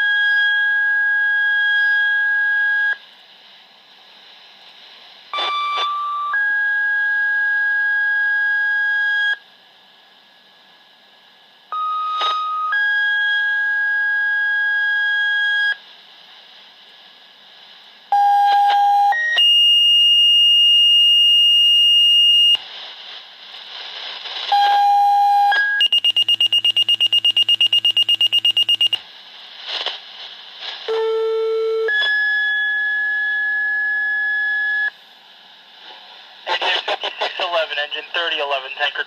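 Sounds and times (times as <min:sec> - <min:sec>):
pager two-tone dispatch tones: 0:11.8 - 0:15.7, 0:24.5 - 0:29.0
rapid pager beeping: 0:24.6 - 0:29.0.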